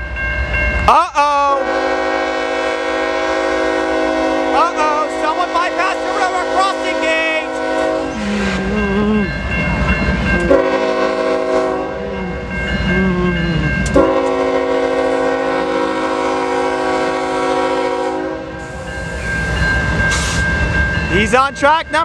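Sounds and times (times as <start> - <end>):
crossing bell ringing: 0.0 - 1.8, 4.6 - 22.0
train rumbling: 0.0 - 22.0
locomotive air horn blasts: 1.6 - 8.8, 10.4 - 12.6, 13.7 - 18.8.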